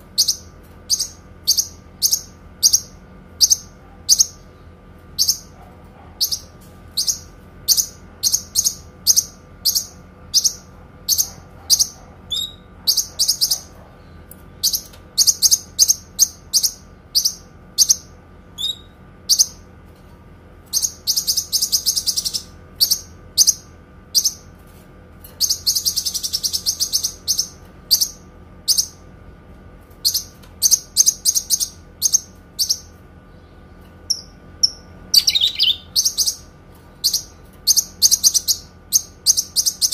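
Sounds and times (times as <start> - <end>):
faint steady hum: 0.0 - 39.9
songbird chirping: 30.1 - 39.9
songbird rapid trills: 34.1 - 36.4.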